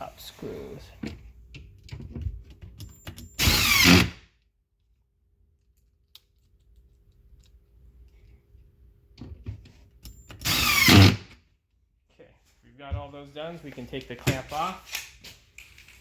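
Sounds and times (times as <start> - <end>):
power drill driving a screw: 3.3 - 4.2, 10.3 - 11.3.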